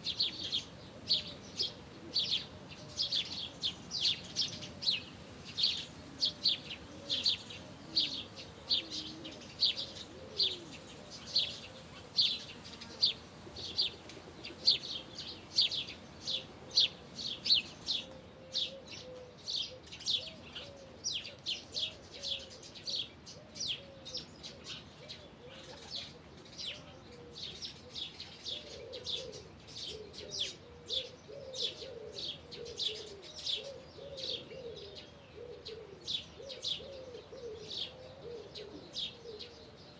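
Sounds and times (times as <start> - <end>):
dove cooing: 0.0 - 39.9
songbird chirping: 0.0 - 39.9.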